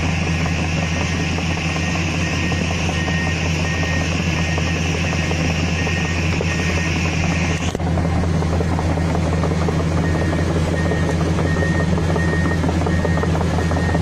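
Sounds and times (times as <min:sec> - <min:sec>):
diesel engine droning: 0:00.0 - 0:14.0
faint high beep: 0:01.8 - 0:07.0.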